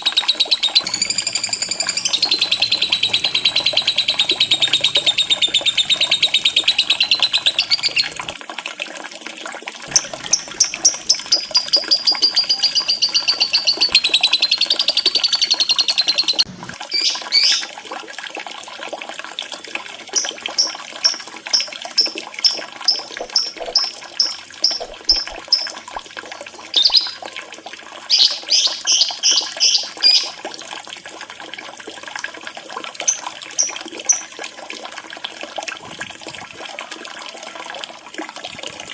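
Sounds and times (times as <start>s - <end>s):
bird trilling chatter: 0.0s - 8.4s, 9.9s - 16.4s
short sharp bird chirps: 0.0s - 8.4s
running water trickle: 0.0s - 38.9s.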